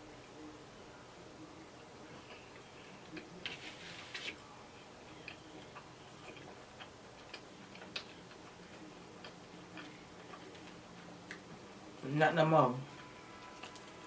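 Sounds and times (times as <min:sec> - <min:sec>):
person chewing food: 0:05.1 - 0:11.5.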